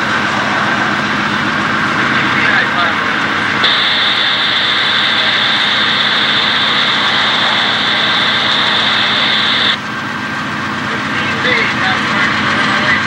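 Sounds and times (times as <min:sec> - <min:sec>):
high-pitched squeal: 0:03.6 - 0:09.8.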